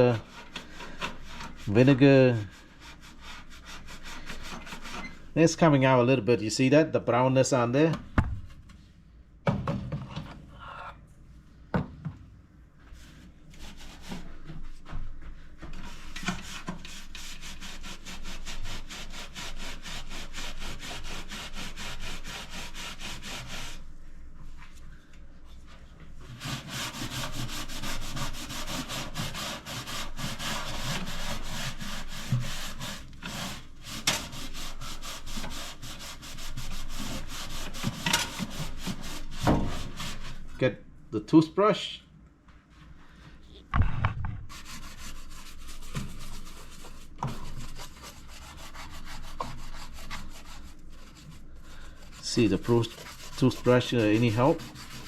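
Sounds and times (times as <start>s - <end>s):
sponge scrubbing grime: 0.0s - 5.2s, 13.0s - 14.8s, 15.8s - 24.0s, 25.6s - 40.6s, 44.5s - 55.0s.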